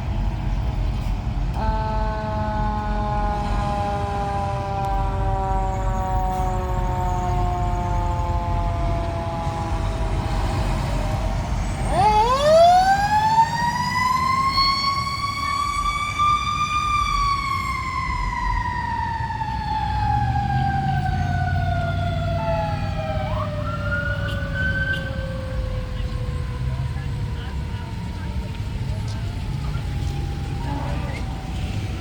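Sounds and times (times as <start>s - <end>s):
fire engine mechanical siren: 0.0s - 32.0s
truck engine rumble: 0.0s - 32.0s
higher siren tone rising: 1.6s - 32.0s.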